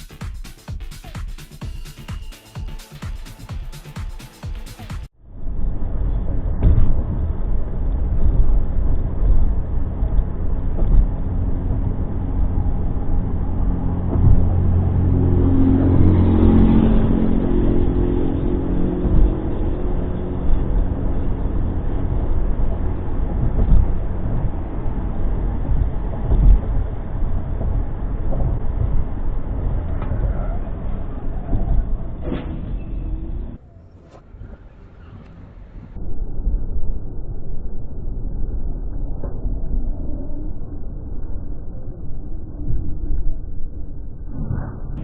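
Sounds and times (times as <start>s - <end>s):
vehicle engine and road noise: 0.0s - 45.0s
loud steady engine hum: 5.1s - 33.6s.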